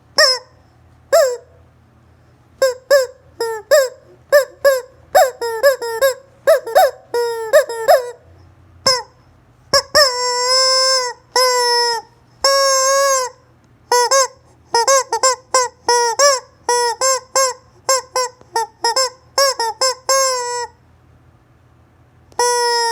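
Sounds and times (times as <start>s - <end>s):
rubber chicken toy squawking: 0.2s - 1.6s, 2.6s - 20.8s, 22.3s - 22.9s.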